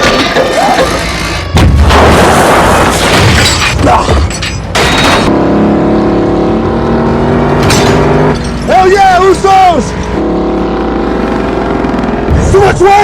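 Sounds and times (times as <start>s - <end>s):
loud crash: 0.0s - 5.3s
engine drone: 4.7s - 13.0s.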